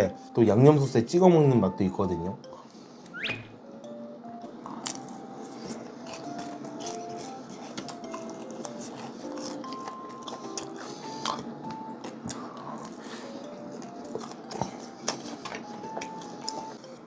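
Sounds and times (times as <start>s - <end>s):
soft background music: 0.0s - 17.0s
crunchy chewing of fried chicken: 4.5s - 17.0s.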